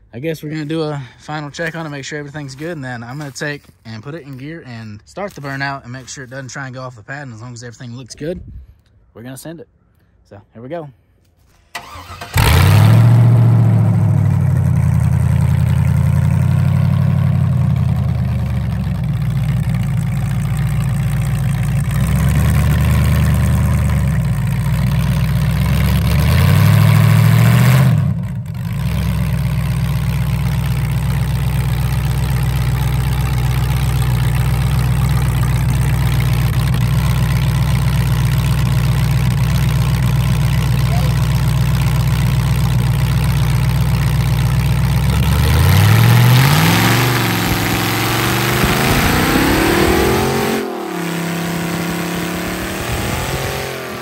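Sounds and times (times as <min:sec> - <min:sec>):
loud lumpy car engine idle: 0:12.4 - 0:46.2.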